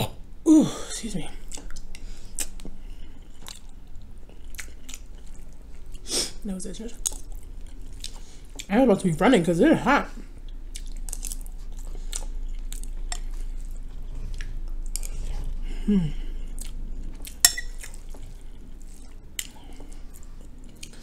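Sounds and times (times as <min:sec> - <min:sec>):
person humming: 0:00.0 - 0:00.9, 0:15.6 - 0:16.5
wet chewing: 0:01.4 - 0:08.7, 0:10.3 - 0:21.0.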